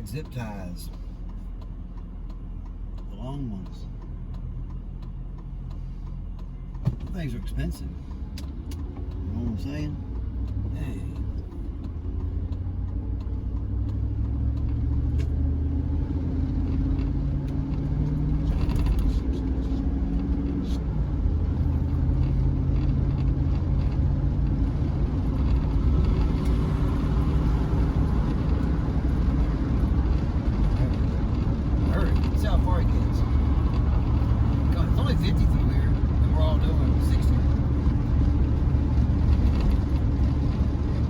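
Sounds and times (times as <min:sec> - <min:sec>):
pickup engine drone: 0:00.0 - 0:41.0
road rumble: 0:00.0 - 0:41.0.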